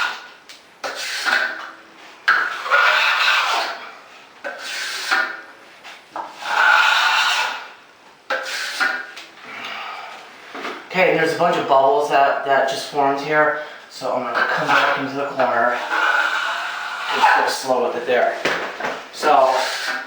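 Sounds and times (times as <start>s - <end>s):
trowel scraping wet plaster: 0.8s - 1.6s, 2.4s - 3.8s, 6.3s - 7.7s, 14.3s - 17.8s.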